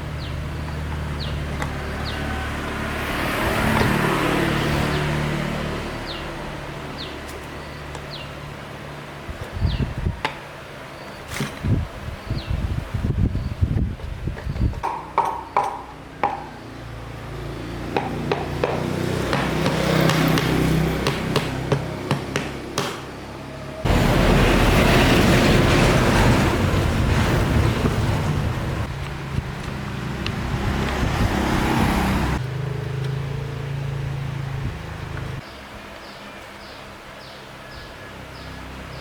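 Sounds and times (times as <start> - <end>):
sharp taps: 18.0 - 23.1.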